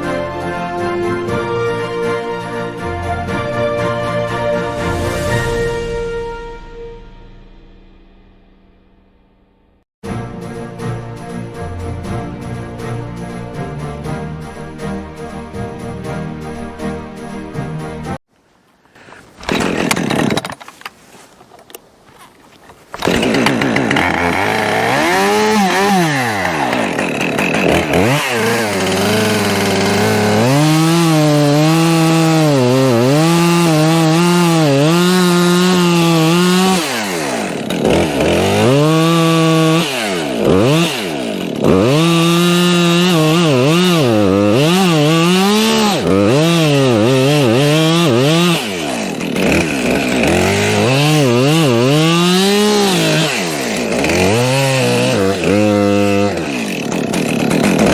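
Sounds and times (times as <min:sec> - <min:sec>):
chainsaw cutting wood: 0:19.0 - 0:57.9.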